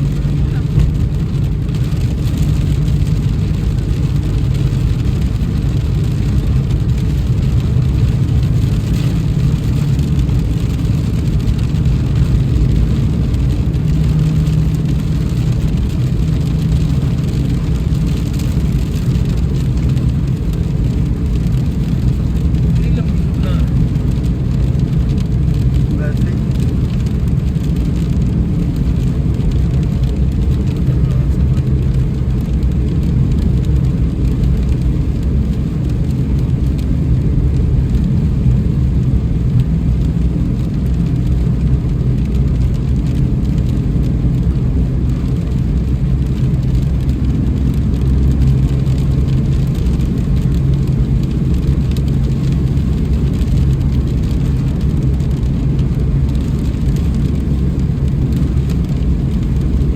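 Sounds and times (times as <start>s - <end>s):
rain on car: 0.0s - 59.9s
road and engine rumble: 0.0s - 59.9s.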